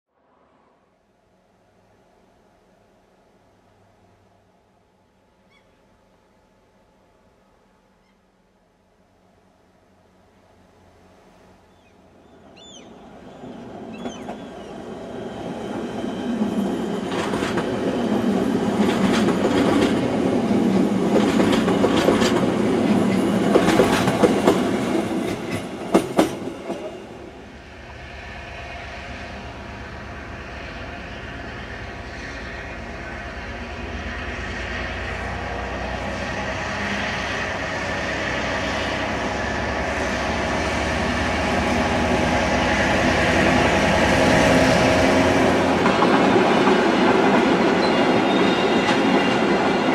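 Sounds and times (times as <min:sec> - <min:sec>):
electric train passing: 0:08.9 - 0:49.9
diesel locomotive engine running: 0:12.6 - 0:49.9.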